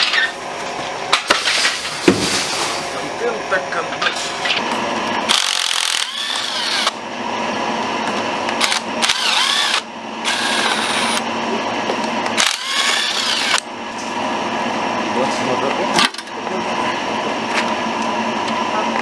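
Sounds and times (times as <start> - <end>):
power tool running in bursts: 4.4 - 11.6, 12.3 - 13.7.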